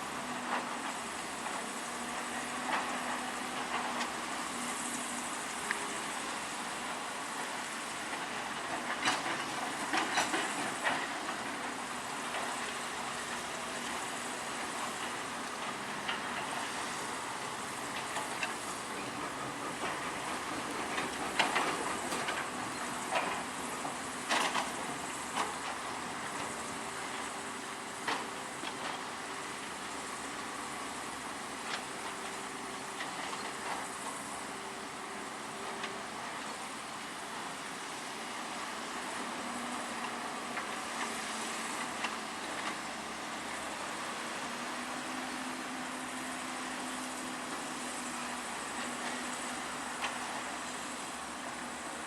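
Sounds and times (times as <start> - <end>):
construction machinery hissing: 0.0 - 52.0.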